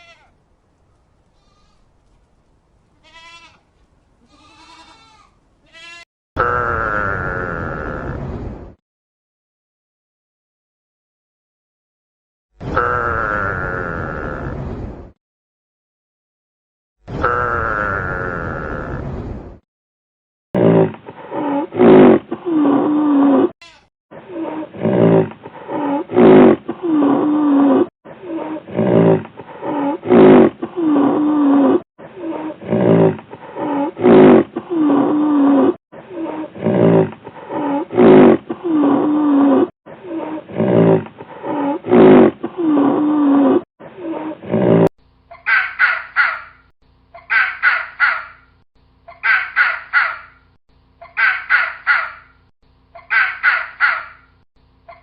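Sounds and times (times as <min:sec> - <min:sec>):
big cat roaring and growling: 0:06.4 - 0:08.6, 0:20.6 - 0:23.5, 0:24.2 - 0:35.8, 0:36.4 - 0:39.7, 0:40.3 - 0:44.9.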